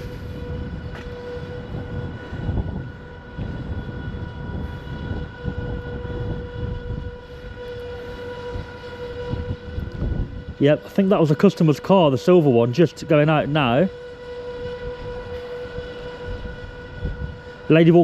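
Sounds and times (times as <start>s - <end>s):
steady high whine: 0.0s - 18.0s.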